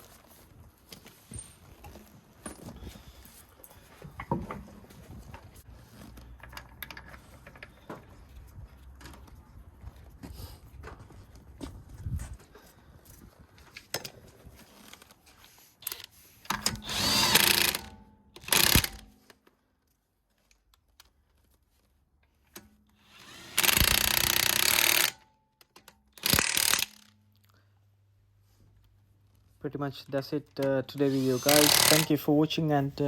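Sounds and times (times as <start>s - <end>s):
impact wrench bursts: 15.9s - 19.1s, 23.0s - 25.2s, 26.2s - 27.1s, 30.9s - 32.3s.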